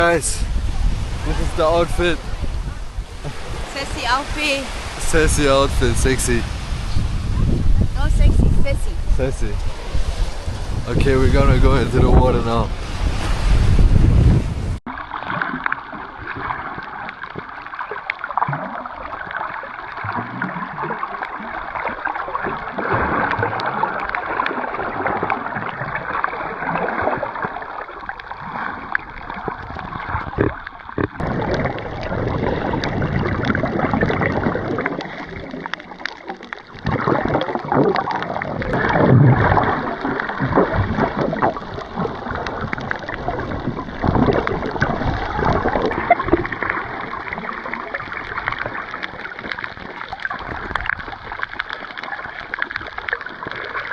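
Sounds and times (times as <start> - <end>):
muffled water gurgling and sloshing: 0.0 - 53.9.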